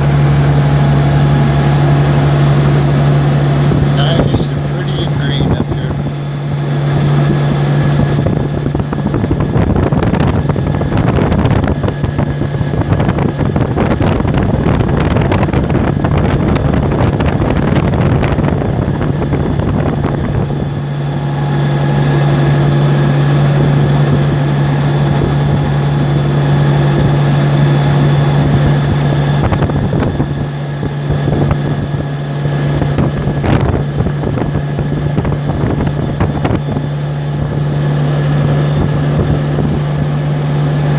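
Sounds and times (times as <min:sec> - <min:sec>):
vehicle engine and tyres droning: 0:00.0 - 0:40.9
wind rushing over microphone: 0:00.0 - 0:40.9.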